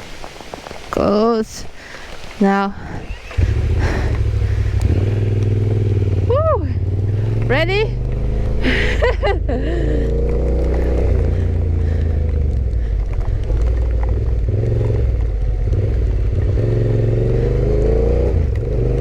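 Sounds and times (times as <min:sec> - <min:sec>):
heavy low rumble: 0:02.8 - 0:17.6
motorcycle engine accelerating: 0:03.1 - 0:19.0.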